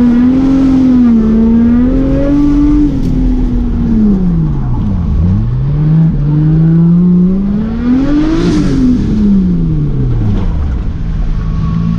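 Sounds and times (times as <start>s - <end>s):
car engine revving under load: 0.0s - 11.9s.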